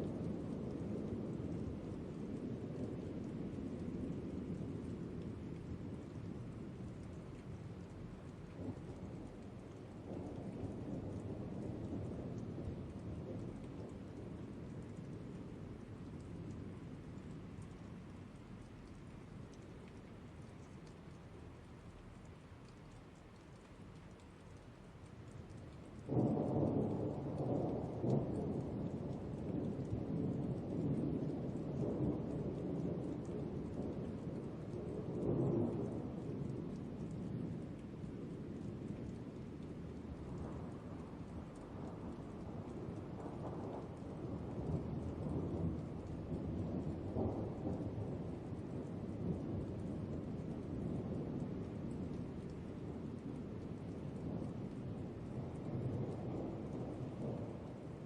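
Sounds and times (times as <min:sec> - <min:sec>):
faint rain patter: 0:00.0 - 0:58.0
thunder clap and rumble: 0:26.0 - 0:58.0.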